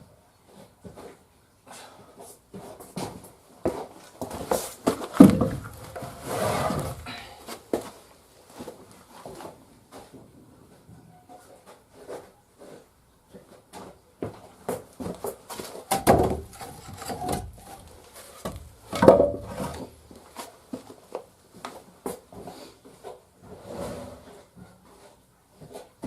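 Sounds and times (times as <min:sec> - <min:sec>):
firewood logs clattering: 0:04.9 - 0:07.1, 0:15.9 - 0:19.9
heavy wooden thuds: 0:05.2 - 0:07.1, 0:18.5 - 0:19.8.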